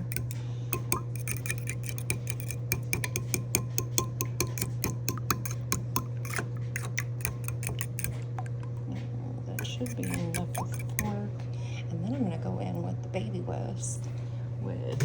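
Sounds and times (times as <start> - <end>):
fork clicking against a bowl: 0.0 - 8.8, 9.6 - 11.2
steady low hum: 0.0 - 15.0.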